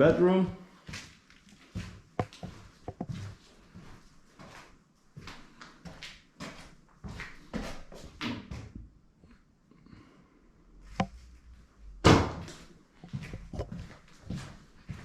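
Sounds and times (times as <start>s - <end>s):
loud thump: 12.0s - 12.5s.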